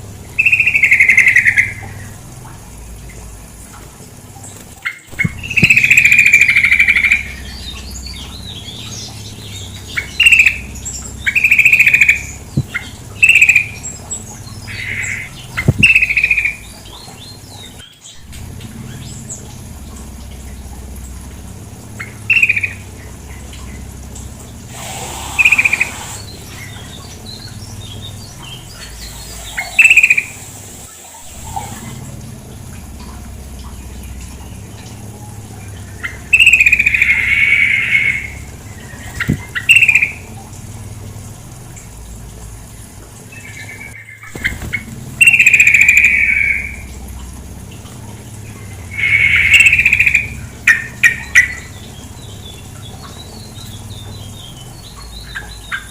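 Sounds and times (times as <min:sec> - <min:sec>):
running water: 0:00.0 - 0:55.9
bird chattering call: 0:00.3 - 0:02.2, 0:04.8 - 0:40.5, 0:43.4 - 0:47.1, 0:48.0 - 0:55.9.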